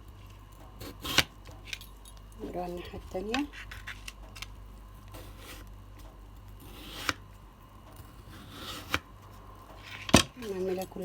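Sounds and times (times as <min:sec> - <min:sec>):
knife slicing potato: 0:00.8 - 0:01.3, 0:05.1 - 0:05.7, 0:06.6 - 0:07.3, 0:08.0 - 0:09.1.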